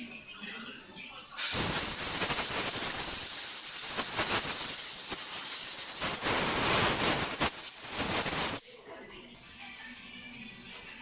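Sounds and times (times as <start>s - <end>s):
pressurised jet hissing: 1.4s - 8.6s.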